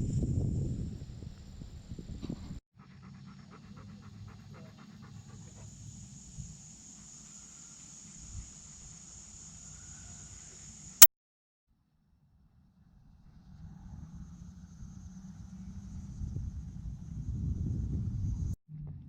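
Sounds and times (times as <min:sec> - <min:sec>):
dog panting: 0:02.8 - 0:06.0.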